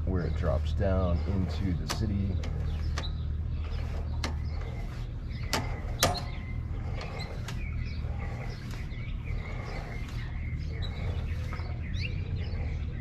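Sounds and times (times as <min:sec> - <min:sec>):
faint birds chirping: 0:00.0 - 0:13.0
steady low hum: 0:00.0 - 0:13.0
cable and reel clicking and creaking: 0:00.1 - 0:12.7.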